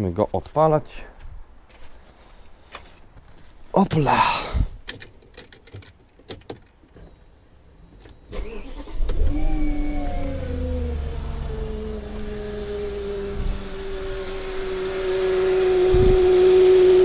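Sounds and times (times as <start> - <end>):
starter motor cranking: 8.3 - 9.4, 13.2 - 17.0
car engine idling: 8.7 - 17.0.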